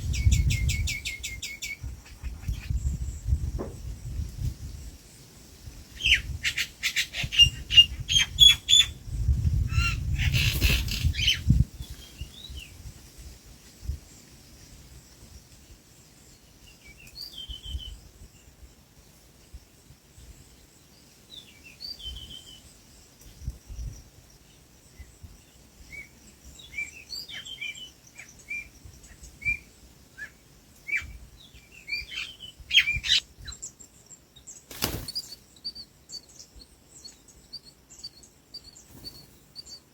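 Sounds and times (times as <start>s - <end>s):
small birds chirping: 0.0s - 5.3s, 5.9s - 12.9s, 20.2s - 39.9s.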